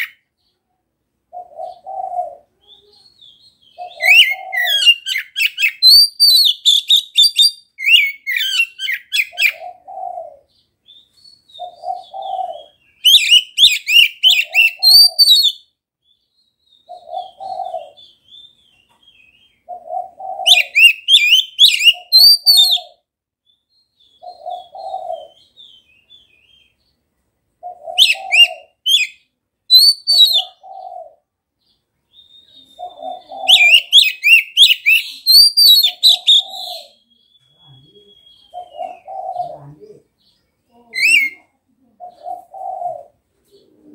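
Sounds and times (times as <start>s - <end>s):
faint bird twittering: 0.0s - 27.0s, 27.6s - 43.9s
dove cooing low note: 1.3s - 2.8s, 3.7s - 5.2s, 9.3s - 10.6s, 11.6s - 12.8s, 16.9s - 18.2s, 19.6s - 20.9s, 24.2s - 25.5s, 27.6s - 28.8s, 30.1s - 31.3s, 32.5s - 34.1s, 34.9s - 40.1s, 41.0s - 43.9s
magpie-robin whistles and chatters: 2.6s - 9.6s, 11.0s - 15.6s, 20.4s - 22.9s, 27.9s - 30.8s, 32.2s - 40.0s, 40.8s - 42.8s.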